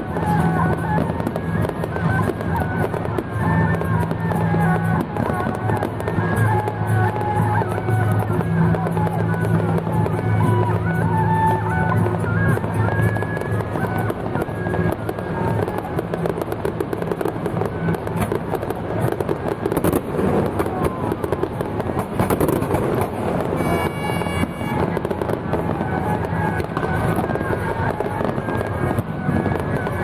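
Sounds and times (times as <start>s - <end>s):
firecrackers popping: 0.0s - 30.0s
music playing: 0.0s - 30.0s
short pitched tone: 23.5s - 24.9s.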